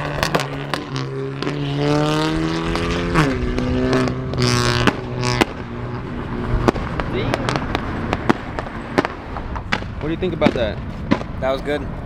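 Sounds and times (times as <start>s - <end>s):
exhaust pops and cracks: 0.0s - 1.0s.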